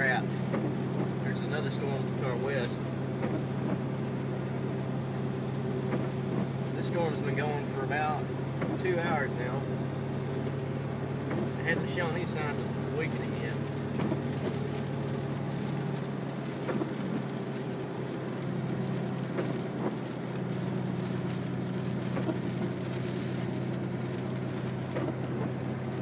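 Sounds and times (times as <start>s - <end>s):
rain on vehicle: 0.0s - 26.0s
vehicle hum from inside cabin: 0.0s - 26.0s.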